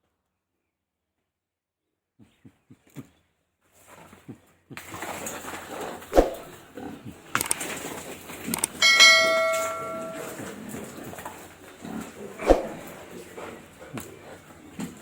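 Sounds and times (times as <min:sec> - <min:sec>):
metal object struck and ringing: 0:08.8 - 0:10.5.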